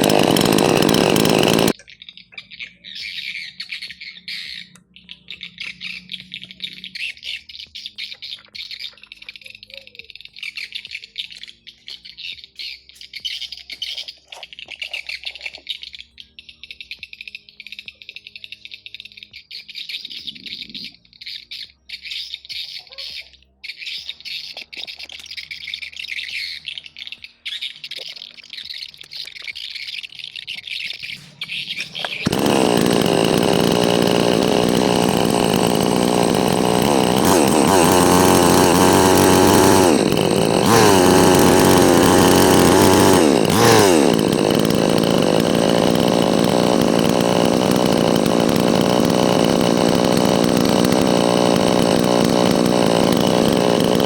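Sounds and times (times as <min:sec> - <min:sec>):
chainsaw running at high revs: 0:00.0 - 0:01.8, 0:31.1 - 0:54.0
birds chirping: 0:00.0 - 0:54.0.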